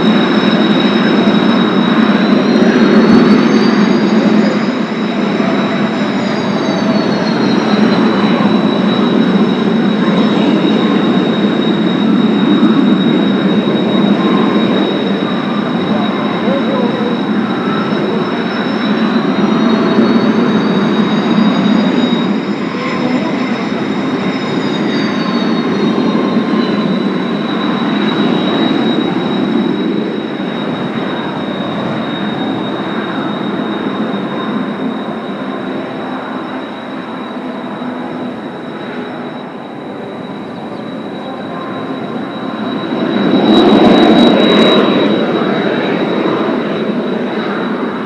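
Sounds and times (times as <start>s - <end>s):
jet engines whining: 0.0s - 48.0s
rising whine: 0.0s - 48.0s.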